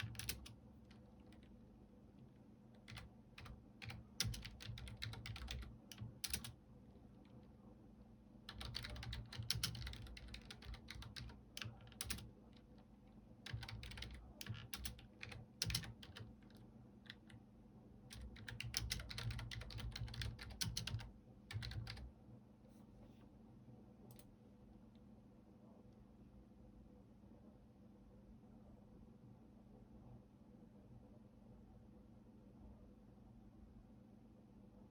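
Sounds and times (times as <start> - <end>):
typing on computer keyboard: 0.0 - 1.6, 2.8 - 6.6, 8.5 - 17.4, 18.1 - 22.1.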